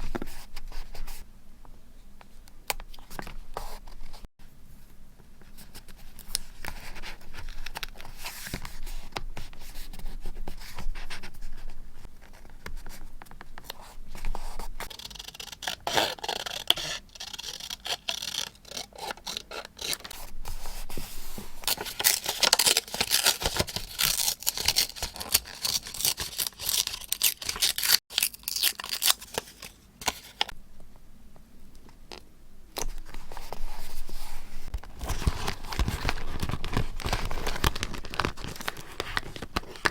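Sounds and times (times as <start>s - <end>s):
paper rustling and scraping: 13.7s - 28.0s, 33.0s - 39.9s
scissors cutting paper: 14.8s - 20.2s, 21.7s - 29.4s.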